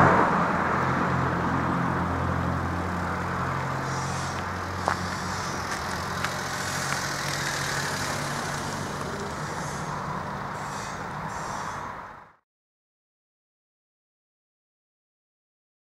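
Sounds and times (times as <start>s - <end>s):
traffic noise: 0.0s - 12.4s
vehicle engine running: 0.8s - 12.4s.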